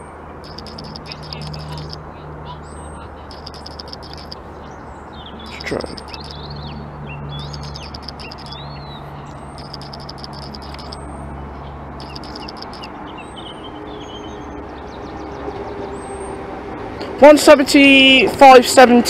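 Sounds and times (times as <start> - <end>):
small birds chirping: 0.5 - 15.2.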